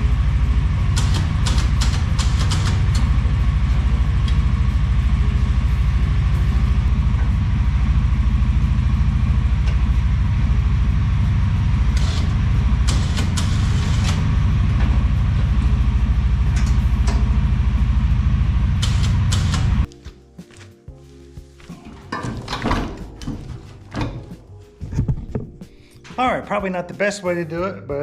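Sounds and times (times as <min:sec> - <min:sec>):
engine idling: 0:00.0 - 0:19.9.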